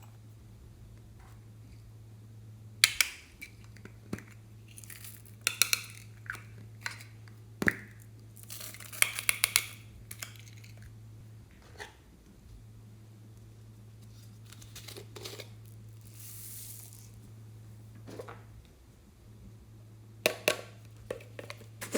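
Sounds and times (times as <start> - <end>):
steady low hum: 0.0 - 21.9
containers clicking and tapping: 8.6 - 10.8, 20.3 - 21.9.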